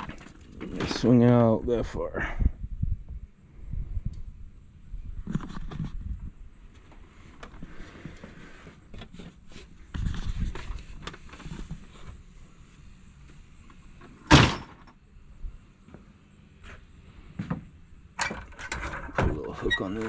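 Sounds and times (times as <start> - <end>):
small knocks and rattles: 0.0 - 1.0, 17.4 - 20.0
loud thunk: 14.3 - 14.8.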